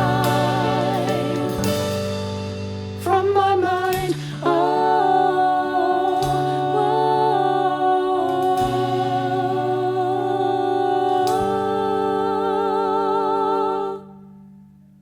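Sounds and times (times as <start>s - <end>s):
musical accompaniment: 0.0s - 5.5s
voices singing in harmony: 0.0s - 14.4s.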